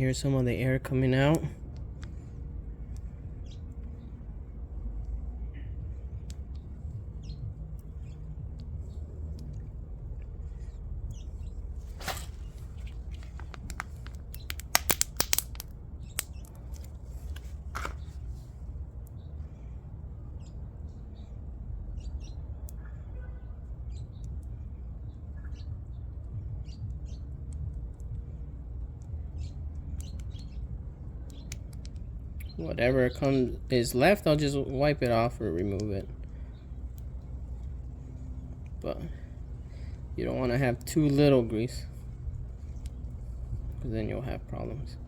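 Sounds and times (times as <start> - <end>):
steady low hum: 0.0 - 45.0
sharp clicks: 12.6 - 17.0.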